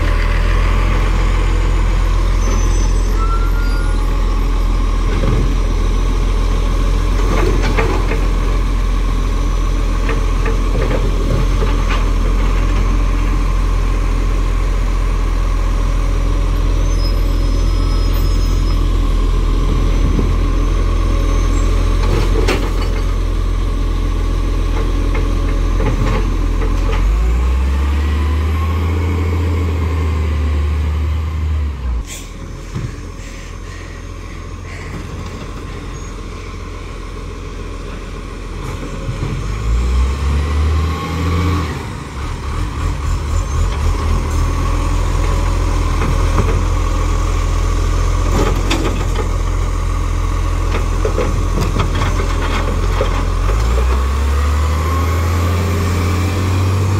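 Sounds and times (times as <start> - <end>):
garbage truck diesel engine: 0.0 - 56.9.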